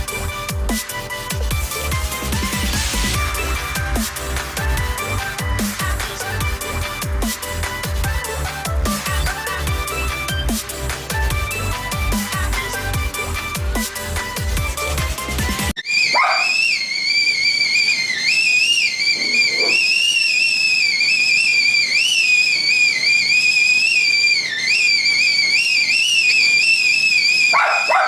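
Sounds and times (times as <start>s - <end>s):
kettle whistling: 15.8s - 28.0s.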